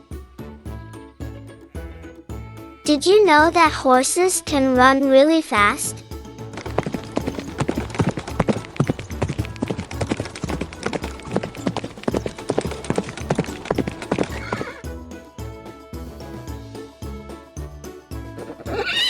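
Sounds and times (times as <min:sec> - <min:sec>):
horse hoofbeats galloping: 0:05.6 - 0:15.7
horse whinny: 0:13.8 - 0:14.9, 0:18.6 - 0:19.0.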